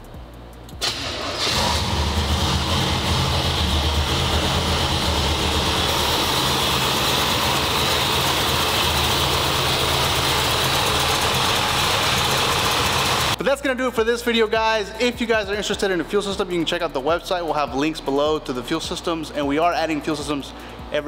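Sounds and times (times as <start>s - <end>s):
car engine starting and idling: 0.7s - 13.4s.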